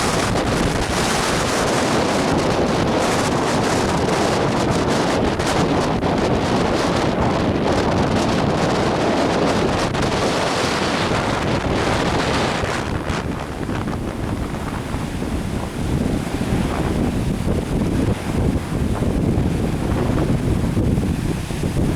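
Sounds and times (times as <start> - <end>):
lake waves breaking on shore: 0.0 - 21.9
wind buffeting microphone: 0.0 - 21.9.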